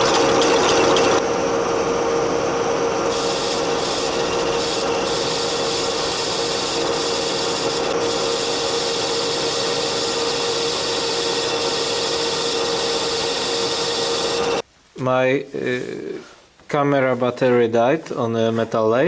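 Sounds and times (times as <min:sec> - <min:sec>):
machine tool humming: 0:00.0 - 0:14.6
metal cutting hiss: 0:03.0 - 0:14.6.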